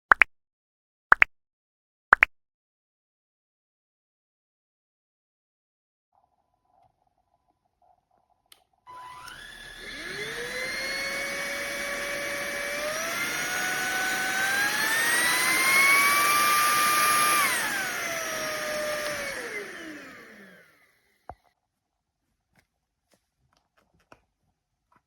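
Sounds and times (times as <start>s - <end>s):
click: 8.5s - 9.5s, 18.1s - 20.2s
vacuum motor whining: 8.9s - 21.4s.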